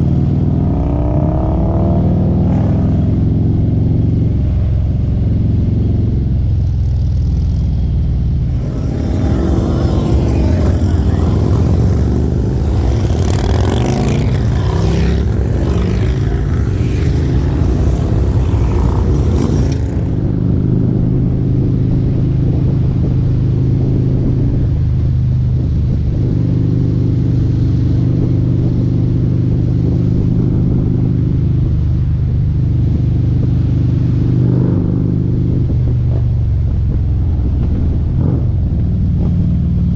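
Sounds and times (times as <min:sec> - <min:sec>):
motorcycle engine cruising: 0:08.2 - 0:20.8
loud rushing noise: 0:08.4 - 0:20.4.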